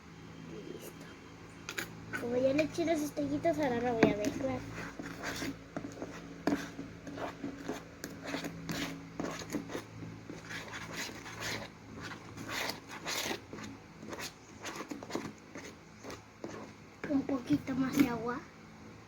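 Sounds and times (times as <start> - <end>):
spoon scraping a dish: 4.0 - 17.3.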